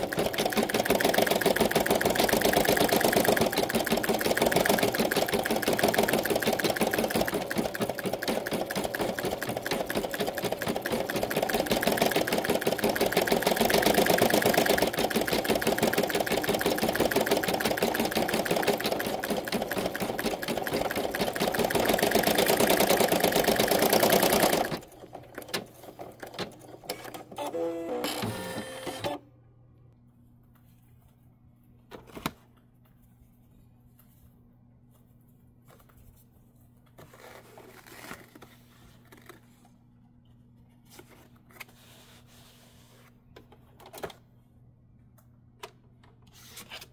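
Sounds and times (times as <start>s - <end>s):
embroidery machine stitching: 0.0s - 29.2s
mechanical whirs and clicks: 26.4s - 29.2s.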